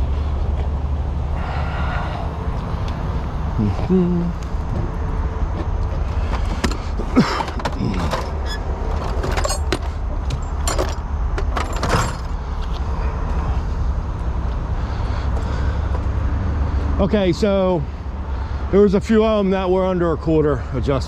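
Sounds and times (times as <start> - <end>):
steady low rumble: 0.0 - 20.2
metal clinks and knocks: 6.3 - 12.4.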